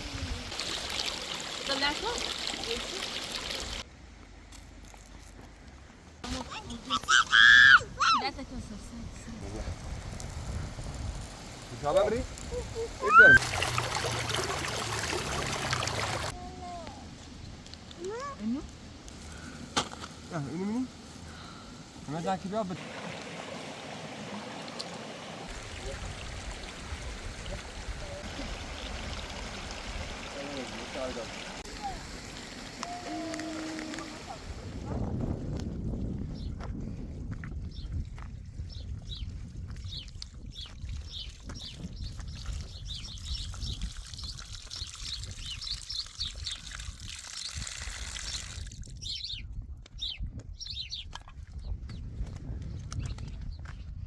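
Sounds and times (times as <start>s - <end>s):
running water: 0.0s - 3.9s, 11.2s - 16.4s, 22.1s - 34.8s, 40.3s - 49.0s
wind rumble on microphone: 7.8s - 13.2s, 33.2s - 54.0s
small birds chirping: 38.6s - 46.8s, 48.2s - 52.4s.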